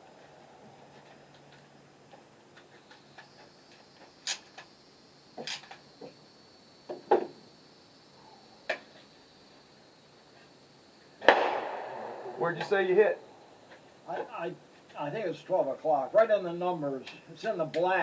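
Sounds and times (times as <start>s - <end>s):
sharp knocks: 11.2s - 12.8s.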